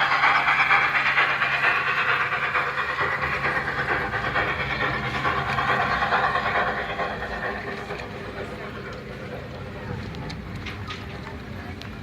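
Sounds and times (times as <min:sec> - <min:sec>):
toy train wheels rattling: 0:00.0 - 0:11.2.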